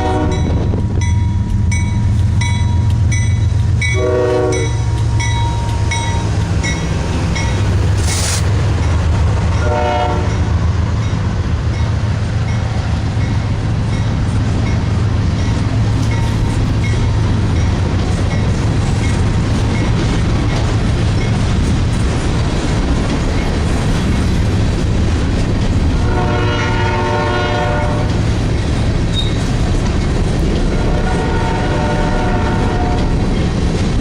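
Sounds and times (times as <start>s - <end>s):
locomotive air horn: 0.0s - 0.6s, 3.8s - 6.1s, 9.6s - 10.5s, 26.0s - 28.1s, 30.8s - 33.2s
train wheels rumbling on rail: 0.0s - 34.0s.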